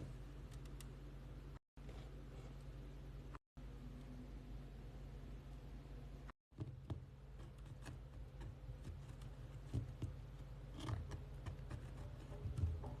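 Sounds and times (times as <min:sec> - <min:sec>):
low steady hum: 0:00.0 - 0:13.0
ticking and tapping inside wall: 0:06.5 - 0:13.0.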